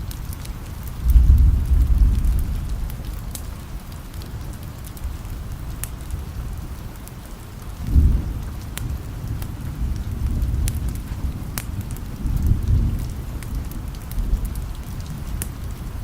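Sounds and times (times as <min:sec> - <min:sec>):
sharp crackles: 0:00.0 - 0:16.0
steady rain: 0:00.0 - 0:16.0
low rolling thunder: 0:00.9 - 0:03.8, 0:07.8 - 0:16.0.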